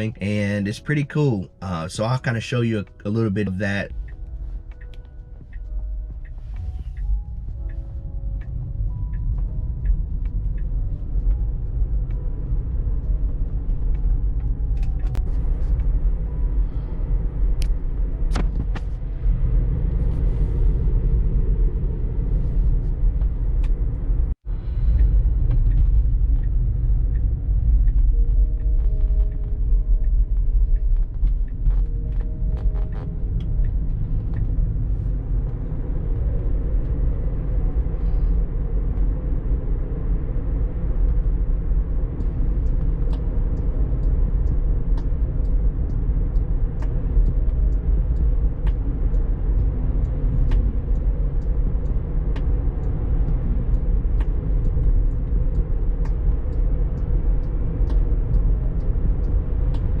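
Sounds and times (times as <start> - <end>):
road and tyre rumble: 0.0 - 60.0
faint ticks: 41.0 - 60.0.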